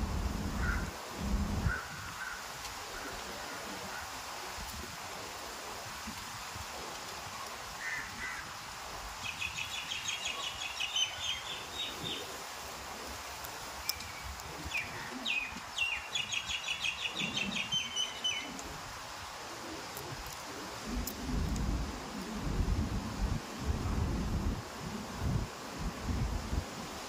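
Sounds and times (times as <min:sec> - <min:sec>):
background hiss: 0:00.0 - 0:27.0
bird chirping: 0:09.2 - 0:12.3, 0:13.9 - 0:18.6.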